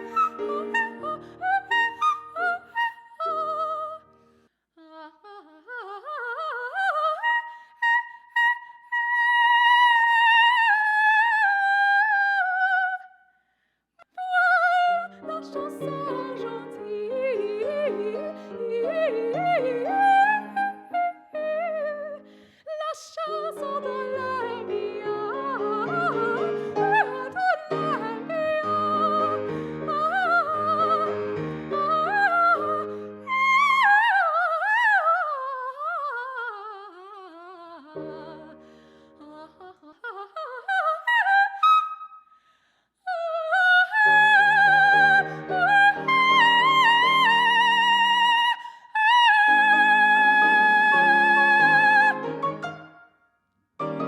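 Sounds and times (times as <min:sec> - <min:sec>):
piano accompaniment: 0:00.0 - 0:02.7, 0:23.3 - 0:33.2, 0:49.5 - 0:53.0, 0:53.8 - 0:54.0
operatic soprano singing: 0:00.0 - 0:04.2, 0:04.8 - 0:13.2, 0:14.0 - 0:42.1, 0:43.0 - 0:52.7.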